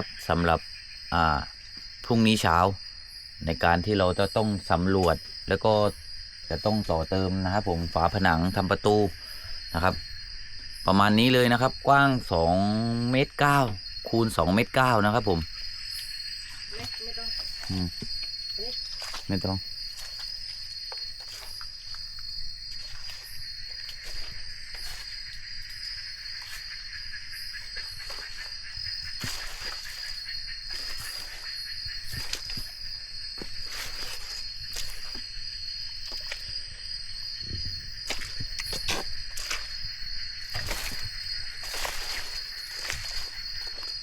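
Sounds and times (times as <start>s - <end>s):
night insects chorus: 0.0s - 44.0s
footsteps through wet undergrowth: 15.2s - 44.0s.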